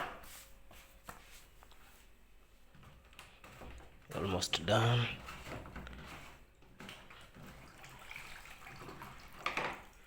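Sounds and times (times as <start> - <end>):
water trickling onto towel: 7.4 - 10.0.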